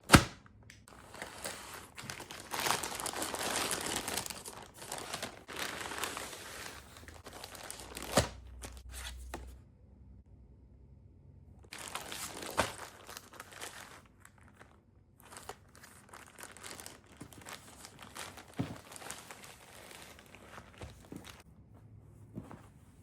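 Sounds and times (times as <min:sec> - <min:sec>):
packaging crinkling: 0:00.9 - 0:09.3, 0:11.7 - 0:21.4.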